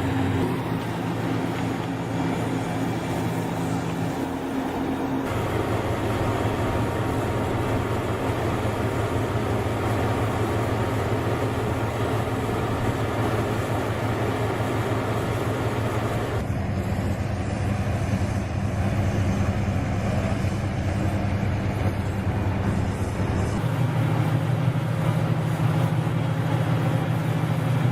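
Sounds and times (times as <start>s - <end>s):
heavy machinery droning: 0.0s - 27.9s.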